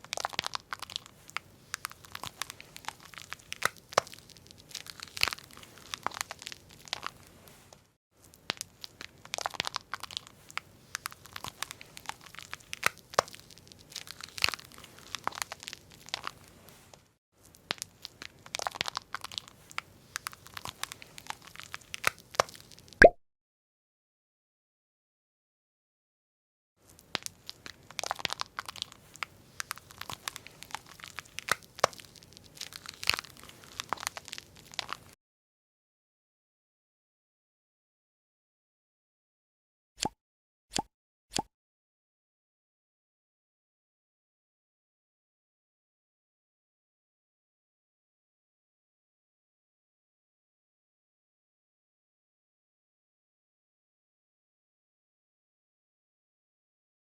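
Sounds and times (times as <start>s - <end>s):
packaging crinkling and tearing: 0.0s - 7.3s, 8.5s - 16.5s, 27.0s - 35.2s.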